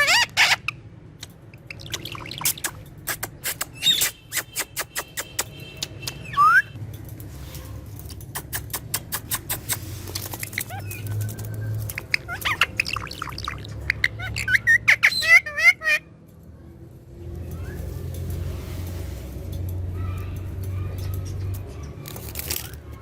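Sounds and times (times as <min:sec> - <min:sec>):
parakeet chirping and whistling: 0:03.7 - 0:04.2, 0:06.2 - 0:06.8, 0:10.5 - 0:15.9.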